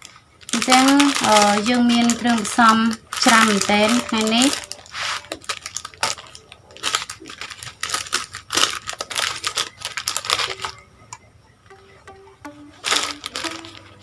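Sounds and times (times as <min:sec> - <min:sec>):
plastic packaging crinkling: 0:00.0 - 0:11.0, 0:12.5 - 0:14.0
faint musical notes: 0:00.0 - 0:14.0.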